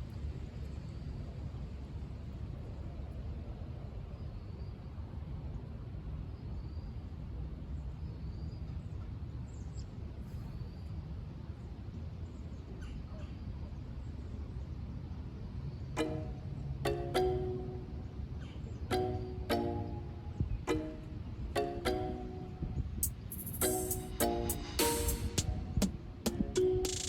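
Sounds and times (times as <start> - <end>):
steady low rumble: 22.3 - 27.0
small bird chirping: 23.0 - 25.4.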